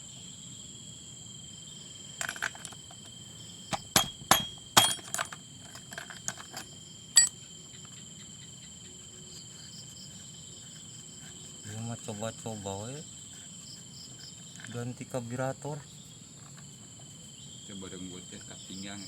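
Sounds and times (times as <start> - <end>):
cricket trill: 0.0 - 19.0
metal parts clicking and knocking: 2.2 - 3.1, 3.7 - 7.3.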